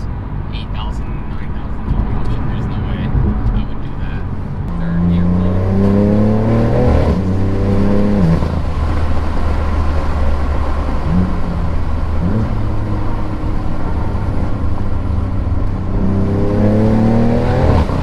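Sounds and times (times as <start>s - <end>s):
car engine running: 0.0s - 18.0s
tyre and road noise: 0.0s - 18.0s.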